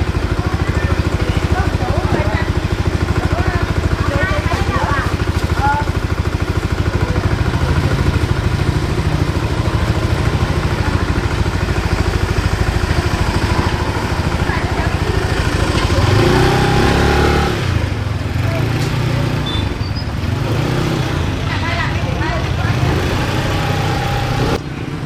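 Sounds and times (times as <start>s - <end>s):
small engine running: 0.0s - 24.6s.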